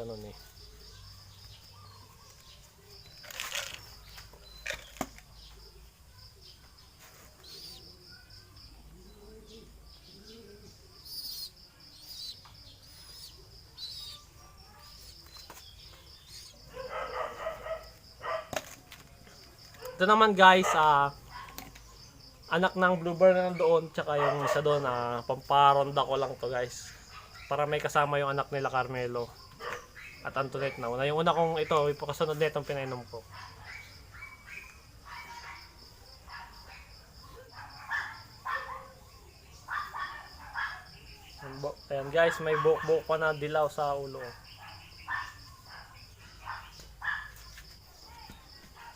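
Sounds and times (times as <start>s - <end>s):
pigeons chirping: 0.0s - 48.9s
pigeon cooing: 7.3s - 15.0s
faint dog barking: 13.2s - 15.2s, 15.9s - 18.6s, 19.7s - 21.7s, 23.5s - 25.1s, 26.7s - 27.7s, 29.5s - 32.0s, 33.1s - 48.9s.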